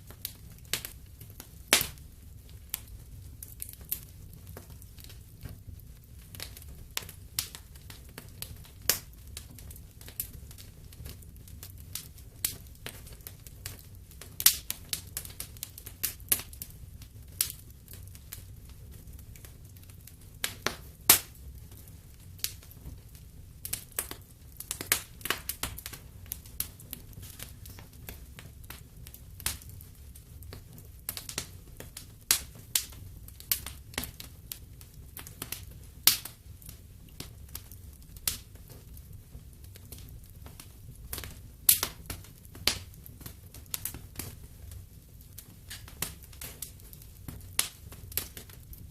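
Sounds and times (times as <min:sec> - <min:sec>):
low rumble of flames: 0:00.0 - 0:48.9
wood fire pops and snaps: 0:00.0 - 0:48.9.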